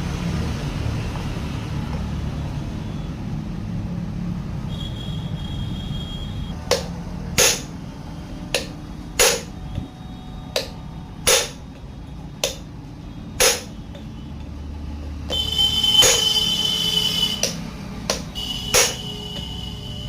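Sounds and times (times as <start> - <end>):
hammer striking metal: 6.6 - 7.8, 8.5 - 9.8, 10.5 - 11.8, 12.4 - 12.7, 13.4 - 14.5, 15.3 - 19.8.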